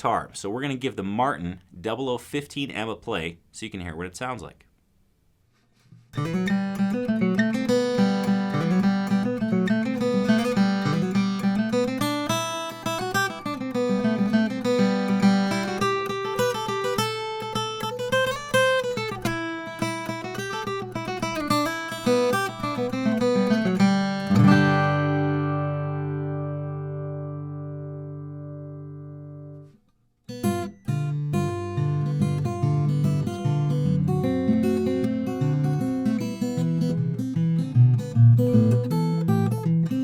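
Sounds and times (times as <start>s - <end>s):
acoustic guitar picking: 5.8s - 40.0s.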